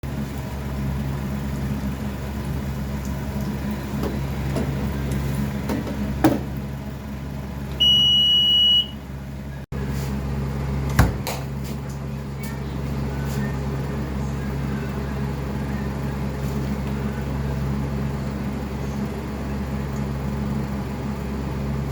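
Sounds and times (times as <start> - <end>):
low machine hum: 0.0 - 21.9
electronic beep: 7.8 - 9.0.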